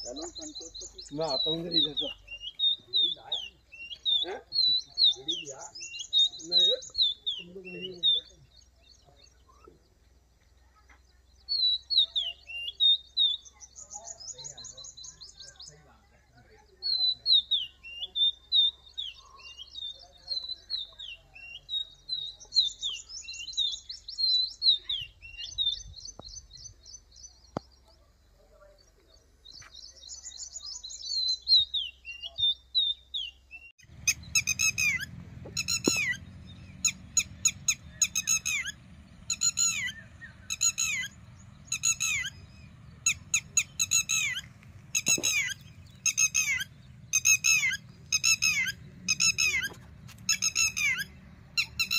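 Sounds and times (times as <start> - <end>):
small birds chirping and trilling: 0.0 - 51.9
sharp falling bird calls: 33.8 - 51.9.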